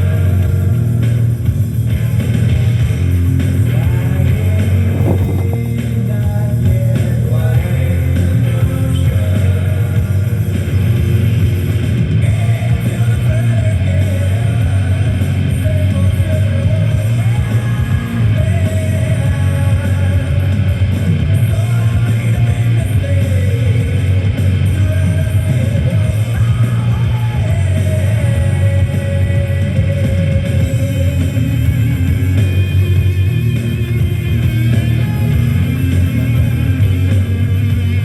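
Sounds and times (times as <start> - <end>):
rock music on a radio: 0.0 - 38.0.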